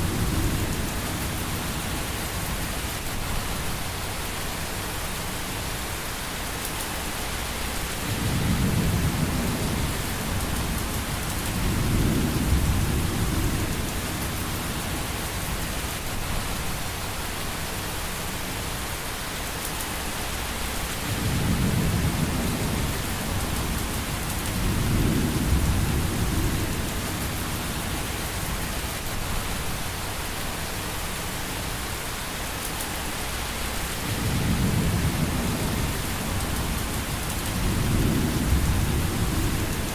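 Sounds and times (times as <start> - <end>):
rain hiss: 0.0 - 39.9
thunder rumbles: 8.0 - 16.0, 21.0 - 29.6, 33.9 - 39.9.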